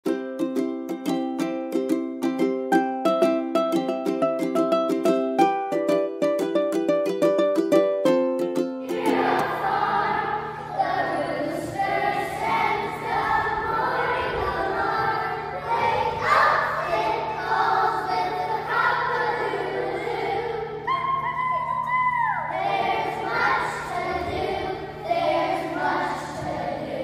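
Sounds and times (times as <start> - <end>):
plucked string notes: 0.0 - 21.2
children singing in unison: 8.8 - 21.3, 22.4 - 27.0.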